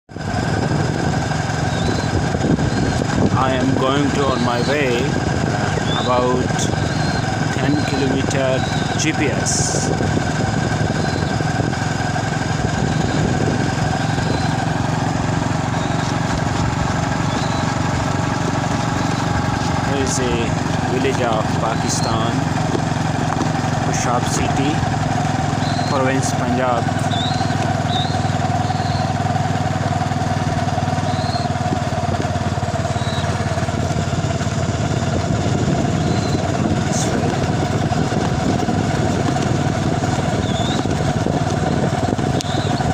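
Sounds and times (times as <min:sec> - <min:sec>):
vehicle engine droning: 0:00.1 - 0:42.9
faint high chirps: 0:27.1 - 0:29.1.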